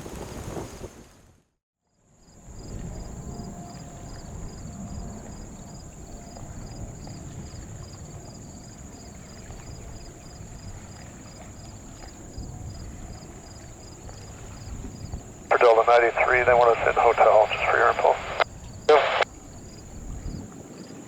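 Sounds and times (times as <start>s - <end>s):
steady high hum: 15.5s - 19.2s.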